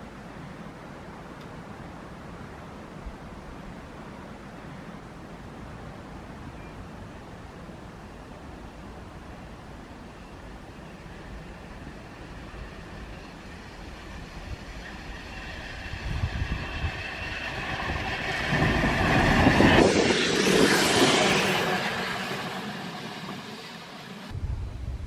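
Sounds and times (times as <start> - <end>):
train passing: 7.0 - 25.0.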